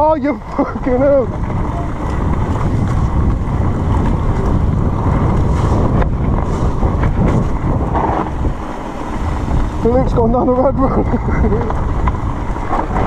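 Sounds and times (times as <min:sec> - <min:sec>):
wind buffeting microphone: 0:00.0 - 0:13.0
bike knocking over rough ground: 0:01.3 - 0:09.8, 0:11.2 - 0:13.0.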